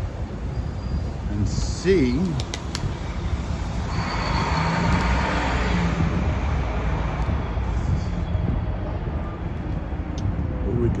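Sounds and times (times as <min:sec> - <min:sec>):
large vehicle passing: 0:03.0 - 0:08.6.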